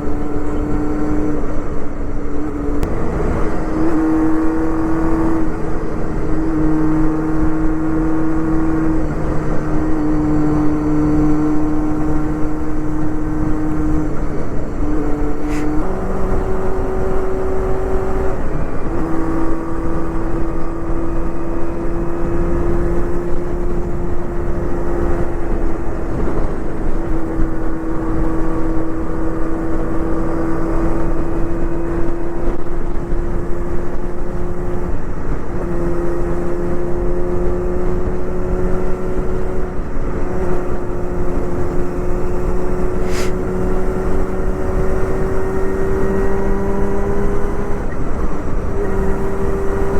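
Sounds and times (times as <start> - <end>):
wind rush: 0.0 - 33.4, 42.4 - 45.8
motorcycle engine at high revs: 0.0 - 49.9.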